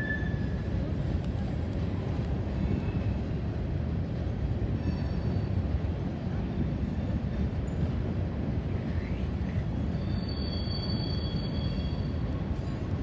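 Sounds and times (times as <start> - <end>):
faint high wheel squeals: 0.0 - 0.7, 4.7 - 5.6, 9.8 - 12.9
freight train wheels rumbling on bridge: 0.0 - 13.0.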